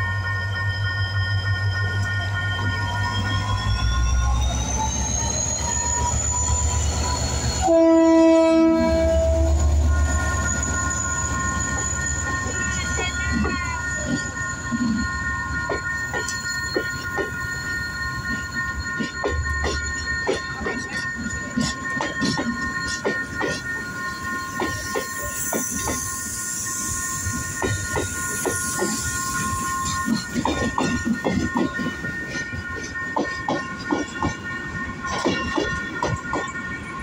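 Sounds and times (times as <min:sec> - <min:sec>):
diesel locomotive engine rumble: 0:00.0 - 0:26.2
high-pitched wheel squeal: 0:00.6 - 0:12.7.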